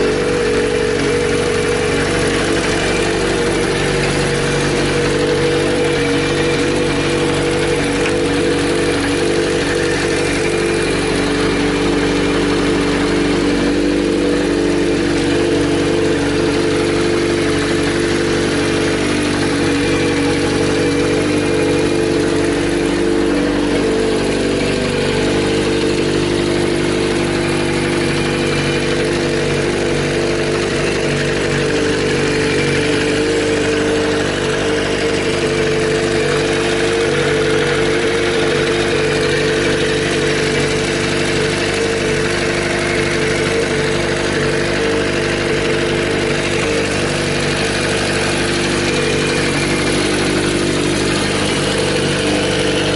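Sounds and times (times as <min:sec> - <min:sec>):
motorcycle engine idling: 0:00.0 - 0:52.9.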